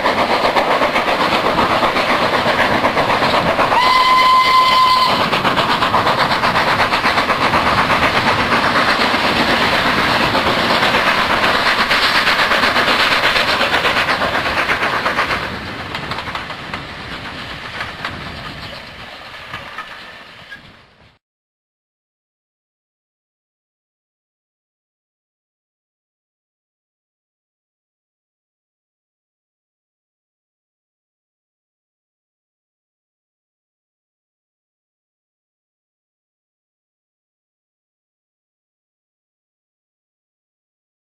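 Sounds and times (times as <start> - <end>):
train wheels clattering on rails: 0.0 - 21.2
train whistle: 3.7 - 5.3.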